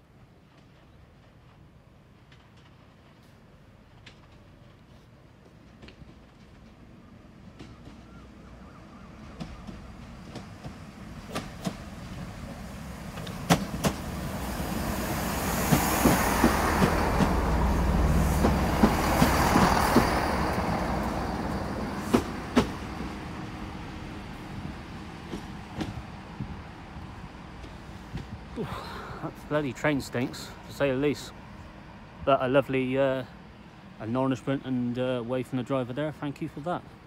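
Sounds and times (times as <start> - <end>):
diesel train passing: 0.0 - 37.0.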